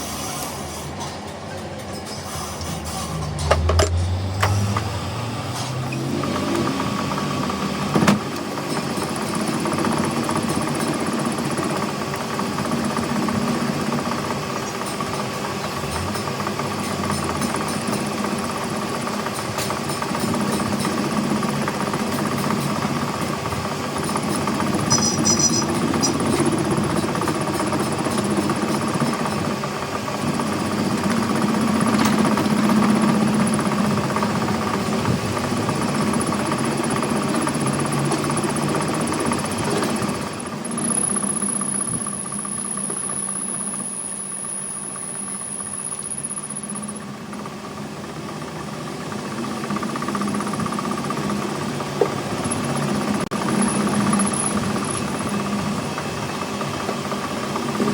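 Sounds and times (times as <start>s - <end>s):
machine rattling and humming: 0.0s - 57.9s
thin high whine: 24.6s - 26.6s.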